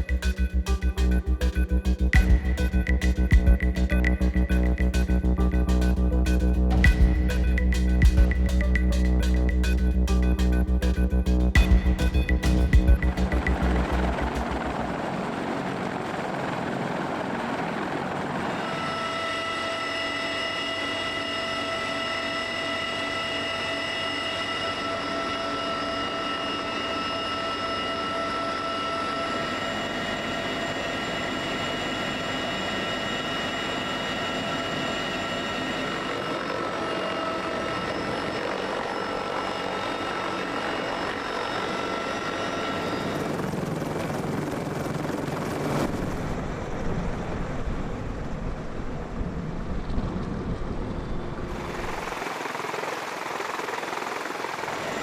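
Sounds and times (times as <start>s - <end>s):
helicopter rotor and engine: 0.0s - 55.0s
high turbine whine: 0.0s - 55.0s.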